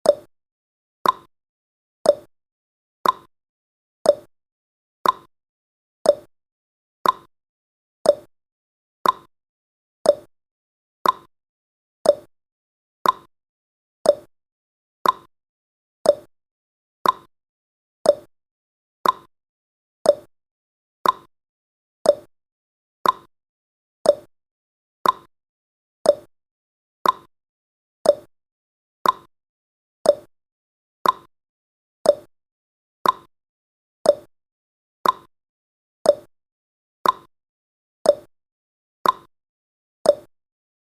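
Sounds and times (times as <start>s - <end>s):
clock ticking: 3.0s - 3.3s, 5.0s - 5.3s, 7.0s - 7.3s, 9.0s - 9.3s, 11.0s - 11.3s, 13.0s - 13.3s, 15.0s - 15.3s, 16.1s - 16.3s, 17.0s - 17.3s, 19.0s - 19.3s, 21.0s - 21.3s, 22.1s - 22.3s, 23.0s - 23.3s, 24.1s - 24.3s, 25.0s - 25.3s, 26.1s - 26.3s, 27.0s - 27.3s, 28.0s - 28.3s, 29.0s - 29.3s, 30.1s - 30.3s, 31.0s - 31.3s, 33.0s - 33.3s, 34.1s - 34.3s, 35.0s - 35.3s, 37.0s - 37.3s, 38.1s - 38.3s, 39.0s - 39.3s, 40.1s - 40.3s.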